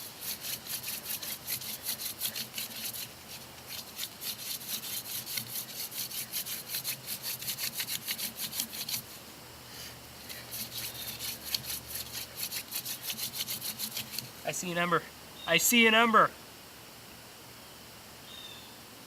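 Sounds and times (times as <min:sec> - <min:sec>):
hand-drill spindle rubbing wood: 0:00.0 - 0:09.1, 0:10.2 - 0:14.3.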